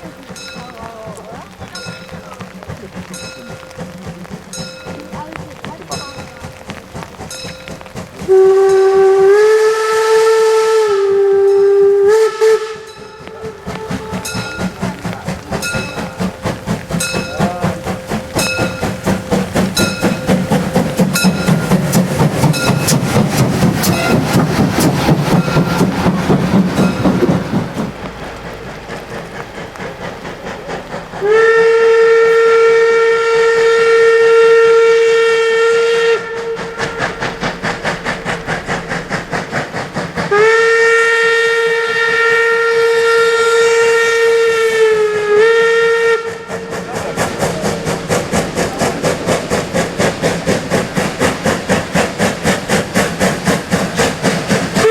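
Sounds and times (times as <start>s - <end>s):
locomotive exhaust chuffing: 0.0s - 54.9s
steam locomotive whistle: 8.2s - 27.4s, 31.2s - 38.5s, 40.2s - 47.9s, 54.5s - 54.9s.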